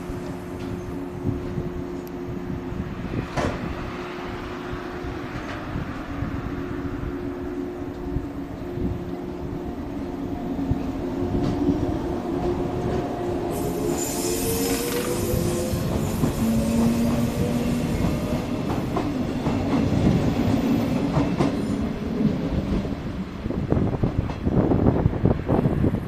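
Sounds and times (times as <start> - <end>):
high hiss: 13.5 - 16.7
train motor whine: 13.5 - 17.8.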